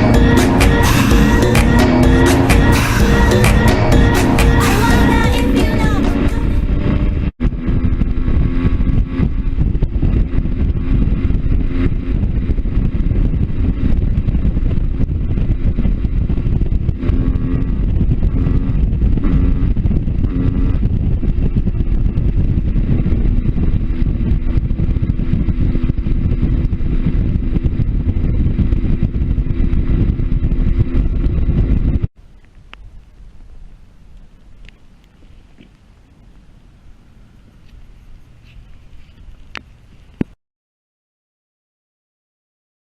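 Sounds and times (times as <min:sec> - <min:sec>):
motorcycle engine cruising: 0:00.0 - 0:32.1
wind rumble on microphone: 0:00.0 - 0:40.4.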